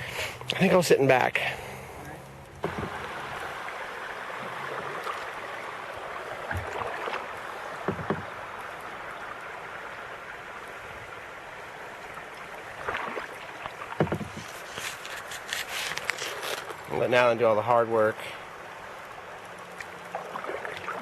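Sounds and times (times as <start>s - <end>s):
creek water rushing: 0.0s - 21.0s
paddle strokes splashing: 1.6s - 17.0s, 19.2s - 21.0s.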